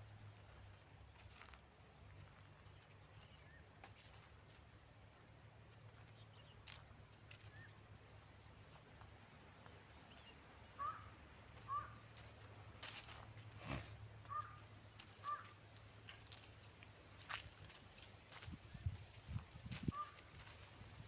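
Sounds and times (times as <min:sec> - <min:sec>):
bird calling: 0:10.1 - 0:12.0, 0:14.2 - 0:15.6, 0:19.9 - 0:20.3.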